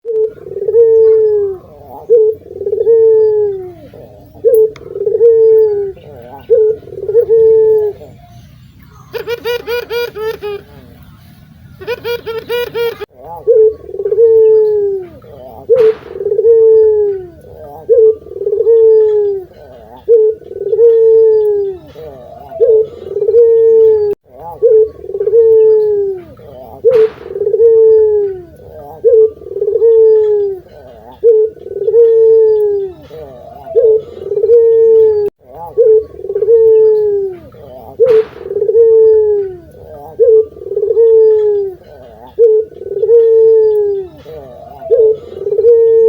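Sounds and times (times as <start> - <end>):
dove cooing: 0.0 - 46.0.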